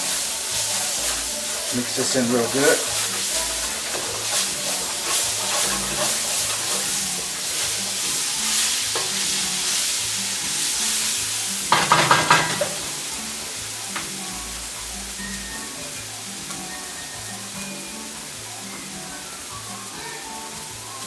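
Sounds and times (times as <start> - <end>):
utensil scraping a pan: 0.0 - 13.1
food sizzling in oil: 0.0 - 21.0.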